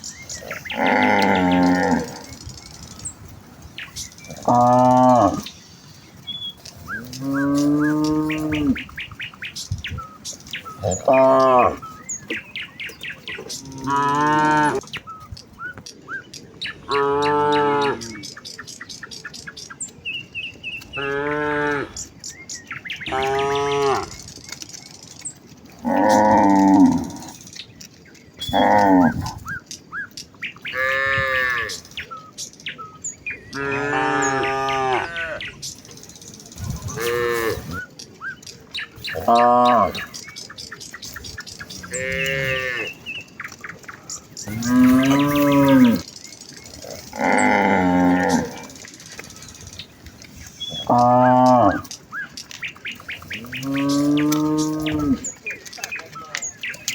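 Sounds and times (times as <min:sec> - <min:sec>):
cows mooing: 0:00.3 - 0:02.4, 0:04.2 - 0:05.5, 0:06.9 - 0:09.0, 0:10.7 - 0:12.4, 0:13.4 - 0:14.9, 0:16.9 - 0:18.3, 0:20.9 - 0:22.2, 0:23.1 - 0:24.3, 0:25.7 - 0:27.4, 0:28.4 - 0:29.5, 0:30.7 - 0:31.9, 0:33.5 - 0:35.5, 0:36.8 - 0:37.8, 0:39.0 - 0:40.2, 0:41.7 - 0:43.1, 0:44.4 - 0:48.9, 0:50.4 - 0:51.9, 0:53.2 - 0:55.4.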